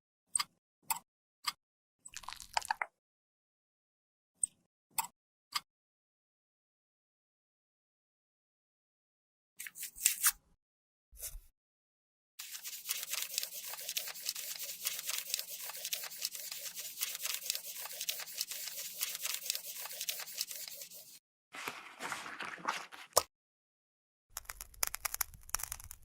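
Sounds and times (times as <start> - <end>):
tool scraping makeup product: 12.4 - 21.2.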